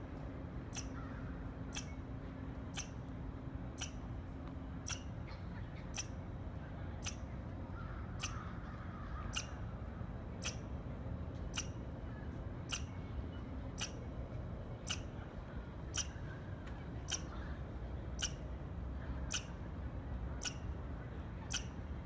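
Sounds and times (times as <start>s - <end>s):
squirrel chirping: 0.7s - 1.1s, 1.7s - 2.0s, 2.7s - 3.0s, 3.8s - 4.0s, 4.8s - 5.2s, 5.8s - 6.2s, 7.0s - 7.2s, 8.2s - 8.4s, 9.3s - 9.6s, 10.4s - 10.7s, 11.5s - 11.8s, 12.7s - 13.0s, 13.8s - 14.0s, 14.8s - 15.1s, 15.9s - 16.2s, 17.1s - 17.4s, 18.2s - 18.4s, 19.3s - 19.6s, 20.4s - 20.7s, 21.5s - 21.8s.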